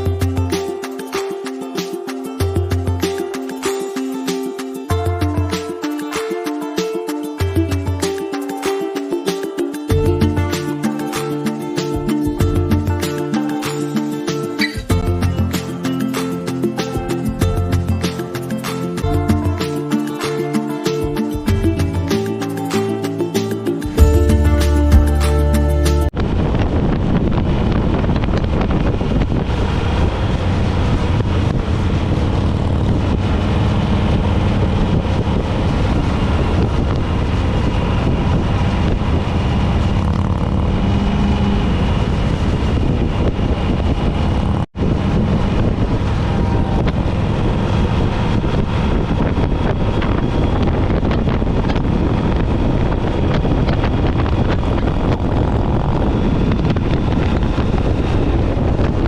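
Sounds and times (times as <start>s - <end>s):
wind buffeting microphone: 26.1s - 59.0s.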